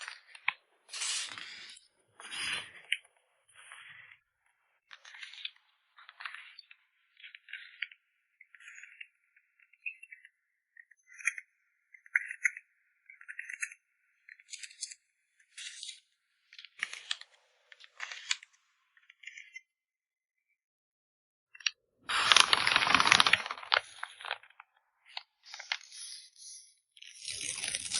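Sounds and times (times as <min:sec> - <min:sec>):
packing material rustling: 0:22.1 - 0:24.6, 0:27.2 - 0:27.9.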